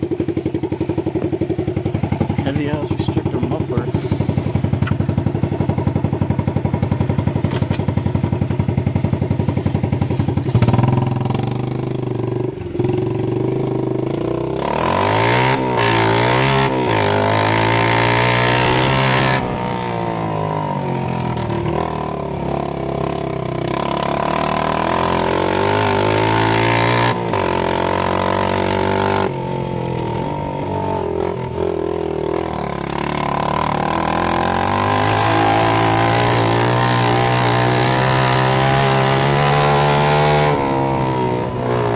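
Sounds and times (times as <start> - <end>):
loud small engine revving: 2.4 - 4.9, 12.8 - 29.4, 30.0 - 41.9.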